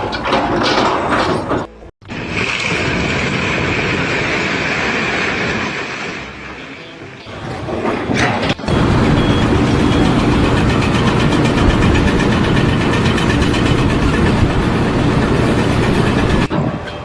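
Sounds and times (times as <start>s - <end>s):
loud engine running: 8.6s - 16.5s.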